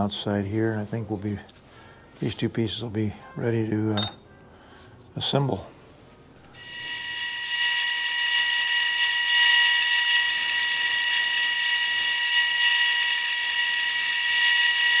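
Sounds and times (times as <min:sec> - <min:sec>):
sanding wheel whining on metal: 0:06.6 - 0:15.0.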